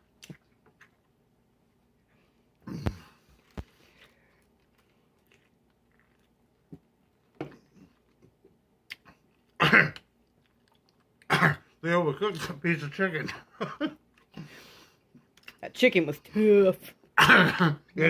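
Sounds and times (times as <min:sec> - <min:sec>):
person chewing food: 0:00.0 - 0:01.2, 0:01.8 - 0:11.3
person coughing: 0:09.6 - 0:10.0, 0:11.3 - 0:11.7, 0:17.2 - 0:17.9.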